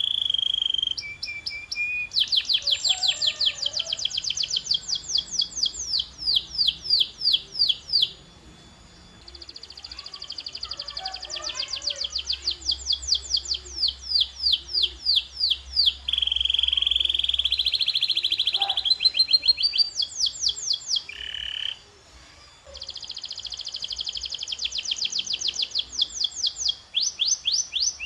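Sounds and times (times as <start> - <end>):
canary singing: 0.0 - 28.0.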